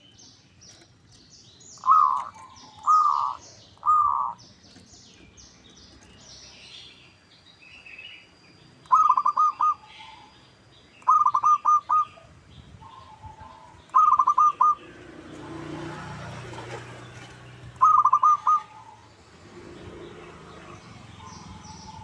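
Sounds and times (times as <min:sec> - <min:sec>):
dove cooing: 0:01.8 - 0:04.4, 0:08.9 - 0:10.3, 0:11.0 - 0:19.1.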